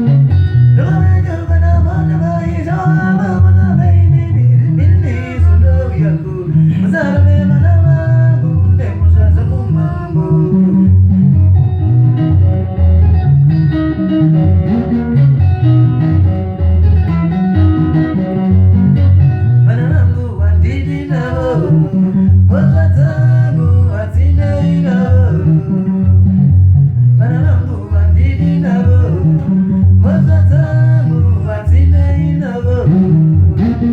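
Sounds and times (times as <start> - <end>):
person singing lead vocal: 0.0 - 11.5, 19.4 - 33.9
plucked guitars: 0.0 - 33.9
pulsing bass guitar: 0.0 - 33.9.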